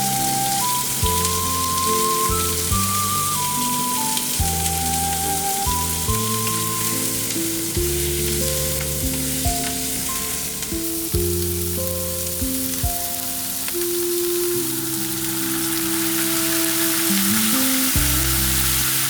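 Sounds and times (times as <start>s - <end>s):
background music with held notes: 0.0s - 19.0s
food sizzling in a pan: 0.0s - 19.0s.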